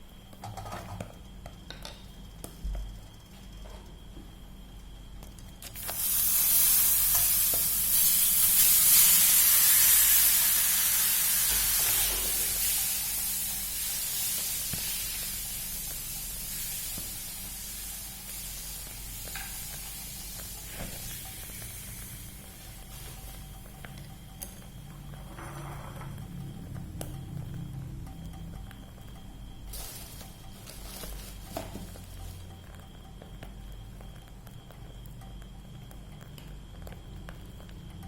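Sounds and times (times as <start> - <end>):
frying oil sizzling: 5.4 - 26.0, 29.1 - 37.9.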